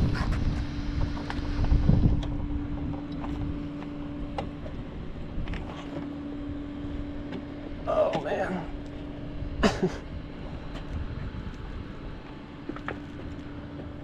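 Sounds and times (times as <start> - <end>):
wind on microphone: 0.0 - 5.8, 9.3 - 12.2
vehicle engine hum: 0.0 - 14.0.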